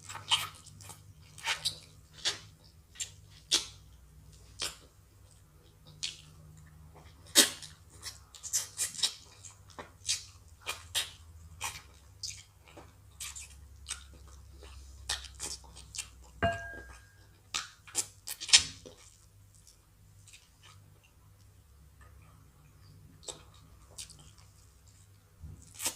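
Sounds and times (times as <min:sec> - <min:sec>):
people chewing and smacking lips: 0:00.0 - 0:25.9
short ringing tone: 0:16.4 - 0:17.2.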